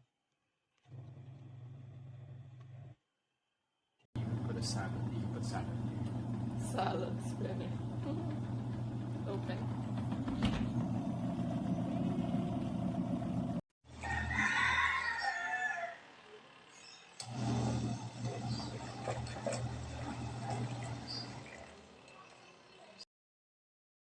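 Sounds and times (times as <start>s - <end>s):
steady low hum: 4.2s - 13.6s
rooster crowing: 13.9s - 16.5s.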